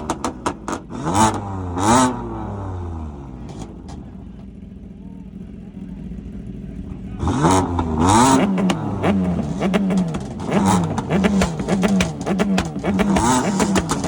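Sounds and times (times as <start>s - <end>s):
exhaust pops and crackles: 0.0s - 2.2s, 3.3s - 4.8s, 6.8s - 14.0s
car engine revving: 0.0s - 4.9s, 6.0s - 14.0s.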